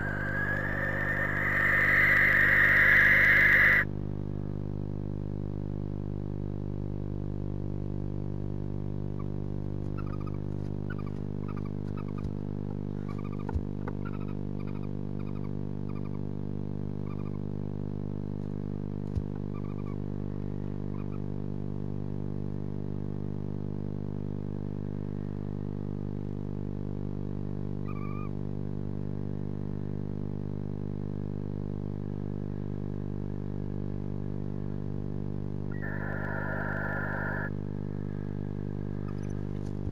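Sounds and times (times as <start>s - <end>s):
owls chirping: 0.0s - 3.9s, 17.1s - 17.4s, 19.5s - 20.0s, 27.9s - 28.3s, 35.7s - 37.5s
steady low hum: 0.0s - 39.9s.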